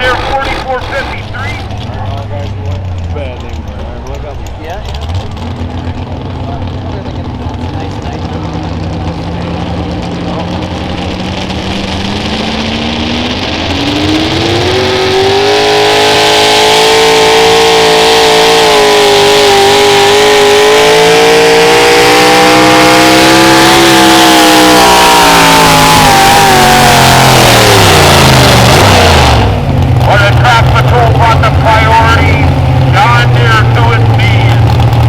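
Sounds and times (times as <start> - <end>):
tractor engine under load: 0.0 - 8.5, 28.0 - 35.0.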